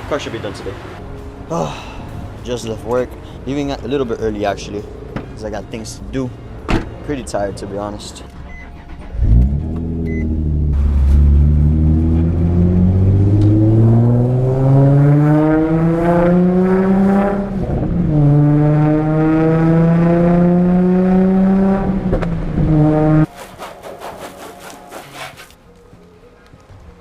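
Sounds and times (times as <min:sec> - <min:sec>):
car engine accelerating: 0:08.5 - 0:23.3.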